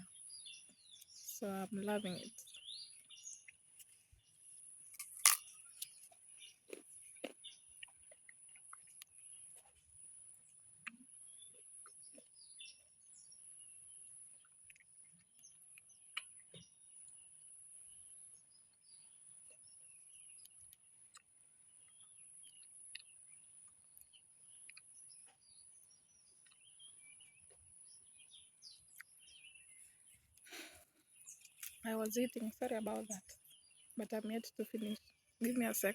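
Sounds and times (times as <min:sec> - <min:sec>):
faint birds chirping: 0:00.0 - 0:35.9
chewing clicks: 0:05.0 - 0:09.7, 0:14.4 - 0:16.6, 0:20.4 - 0:27.7, 0:31.2 - 0:31.8.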